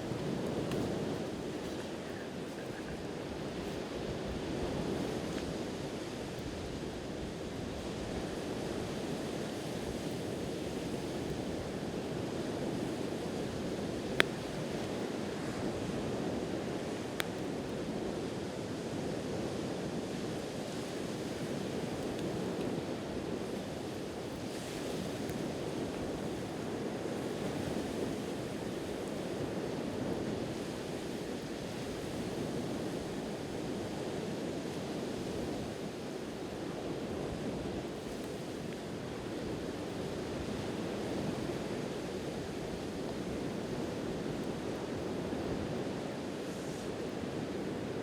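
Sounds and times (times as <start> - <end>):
ocean surf: 0.0 - 17.1.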